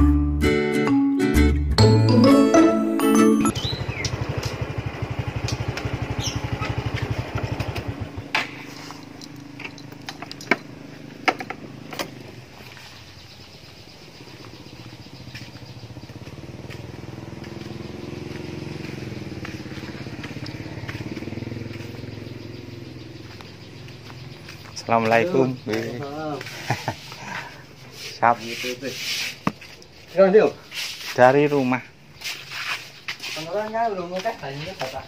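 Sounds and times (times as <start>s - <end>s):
motorcycle engine idling: 3.5s - 28.0s
engine hum: 3.5s - 28.1s.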